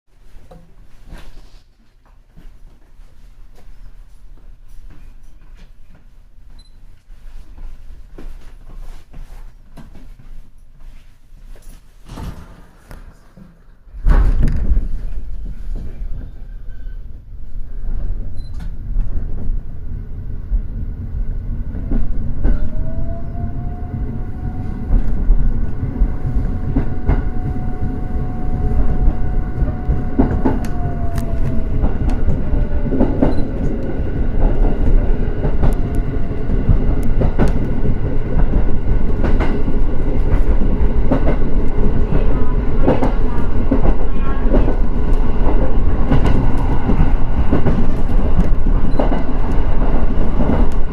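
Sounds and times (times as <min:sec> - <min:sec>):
electric train pulling away: 0:16.5 - 0:42.8
train motor tone: 0:21.8 - 0:37.5.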